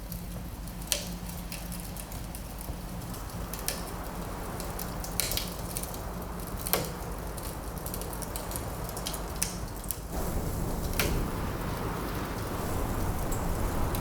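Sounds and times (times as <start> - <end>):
wood fire crackling: 0.0 - 14.0
wind rushing: 10.1 - 14.0.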